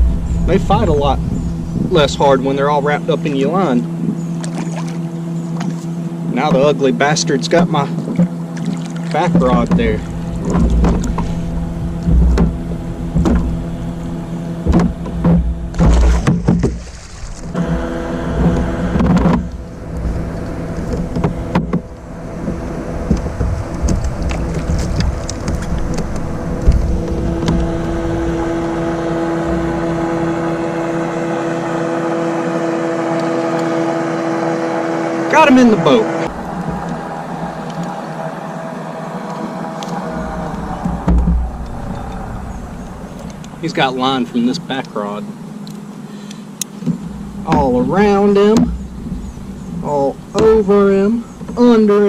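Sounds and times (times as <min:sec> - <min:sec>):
low rumble: 0:00.0 - 0:03.1, 0:09.2 - 0:33.2, 0:35.1 - 0:44.5, 0:47.0 - 0:51.5
engine drone: 0:00.0 - 0:52.0
gear knocking in a kayak: 0:03.8 - 0:31.2, 0:36.3 - 0:43.9, 0:44.7 - 0:52.0
knocks: 0:14.6 - 0:16.8.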